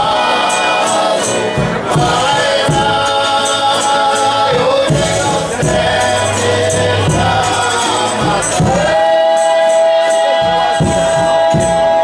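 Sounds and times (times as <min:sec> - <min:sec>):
voices singing together: 0:00.0 - 0:12.0
steady drum beat: 0:00.9 - 0:09.4.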